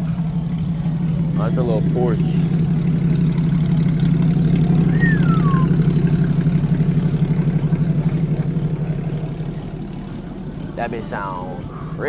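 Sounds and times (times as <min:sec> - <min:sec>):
car engine idling: 0:00.0 - 0:12.0
falling whistle: 0:04.8 - 0:05.9.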